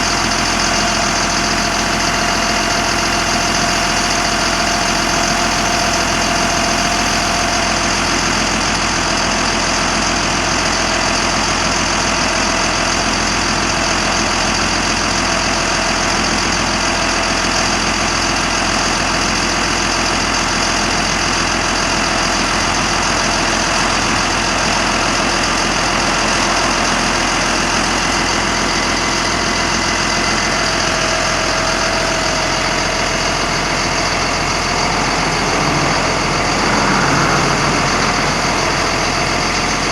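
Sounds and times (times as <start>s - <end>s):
diesel engine idling: 0.0s - 39.9s
faint whine: 32.2s - 39.9s.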